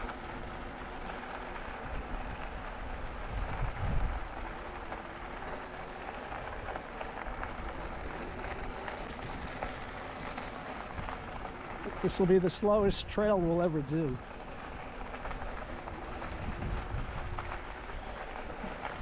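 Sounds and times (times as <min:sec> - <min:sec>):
tyres crunching on gravel: 0:00.0 - 0:19.0
wind buffeting microphone: 0:01.6 - 0:04.6, 0:15.0 - 0:19.0.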